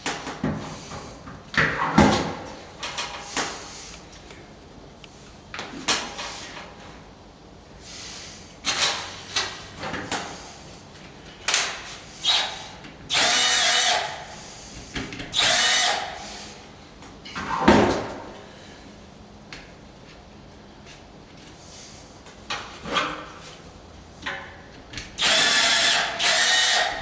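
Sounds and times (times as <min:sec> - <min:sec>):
power drill running: 0:12.2 - 0:14.2, 0:15.3 - 0:16.4, 0:25.2 - 0:27.0.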